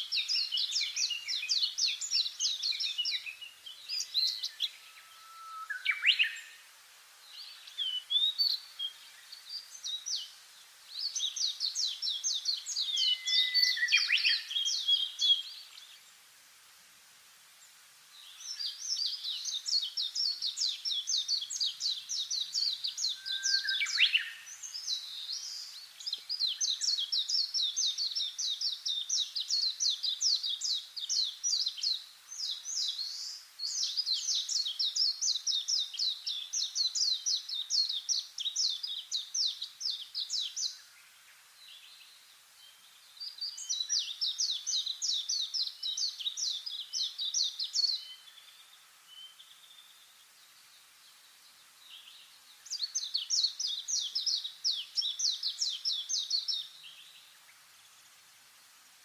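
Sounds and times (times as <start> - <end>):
faint outdoor hiss: 0.0 - 59.0
small bird singing high notes: 12.5 - 15.6, 22.5 - 25.7.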